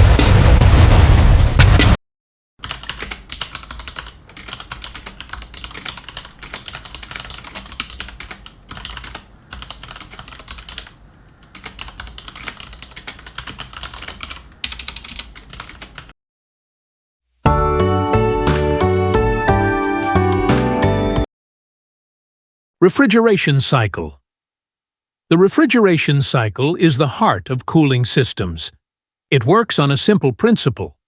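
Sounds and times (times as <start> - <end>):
rapid typing on a keyboard: 2.6 - 16.1.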